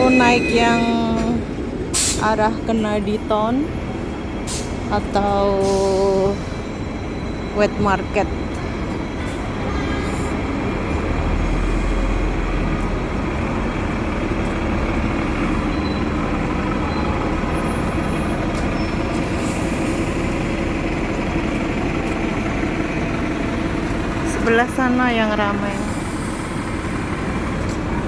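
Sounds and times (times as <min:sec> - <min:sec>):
road traffic rumble: 0:00.0 - 0:28.0
deep engine drone: 0:10.4 - 0:28.0.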